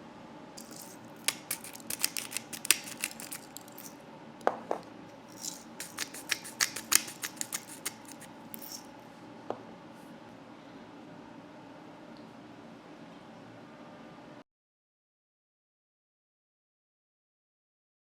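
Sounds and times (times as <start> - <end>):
eggshell crackling: 0.6 - 3.9, 5.4 - 8.3.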